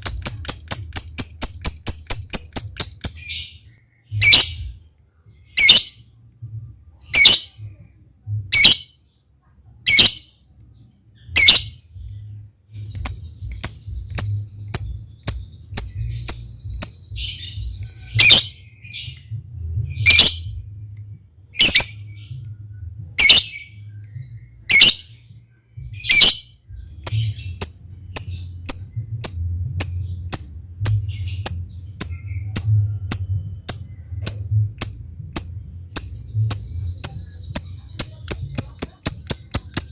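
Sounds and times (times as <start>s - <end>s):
bird ticking calls: 0.0s - 3.4s, 12.8s - 18.5s, 26.0s - 39.9s
lovebird chirping: 0.0s - 6.1s, 7.0s - 9.2s, 9.8s - 39.9s
low steady hum: 0.0s - 39.9s.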